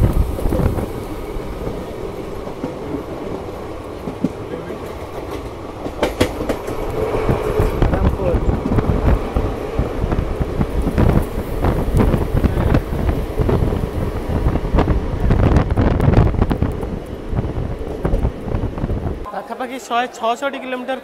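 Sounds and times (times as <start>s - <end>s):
train coach rumbling on rails: 0.0s - 19.3s
wind buffeting microphone: 0.0s - 19.3s
scattered clacks: 4.0s - 9.5s.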